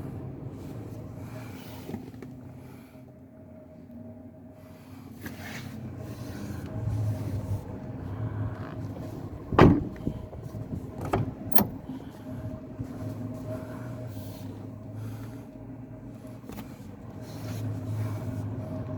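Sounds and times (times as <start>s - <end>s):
car engine idling: 5.8s - 18.9s
loud thump: 9.5s - 10.1s.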